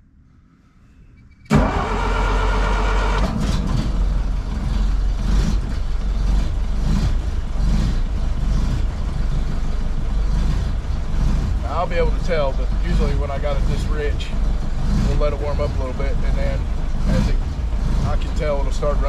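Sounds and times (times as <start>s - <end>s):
car engine starting and idling: 0.0s - 19.0s.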